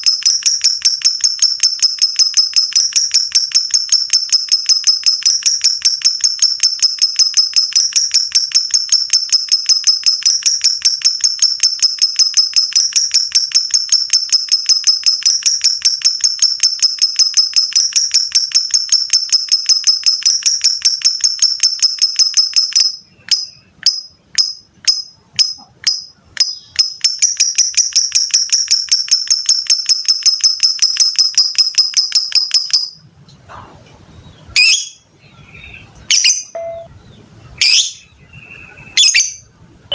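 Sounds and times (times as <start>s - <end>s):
lovebird shrill chattering song: 34.2s - 39.5s.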